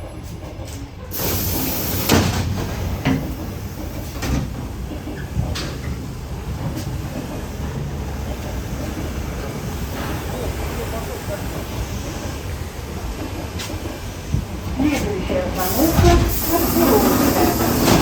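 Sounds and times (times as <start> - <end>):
electric train rumbling: 0.0 - 18.0
loud air hiss: 1.1 - 2.4, 15.6 - 18.0.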